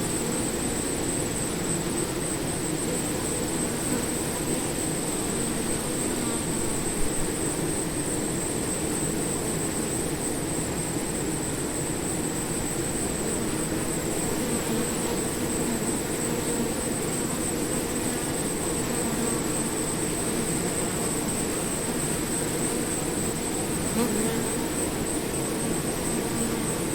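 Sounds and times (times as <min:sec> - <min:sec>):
bees buzzing: 0:12.2 - 0:26.9.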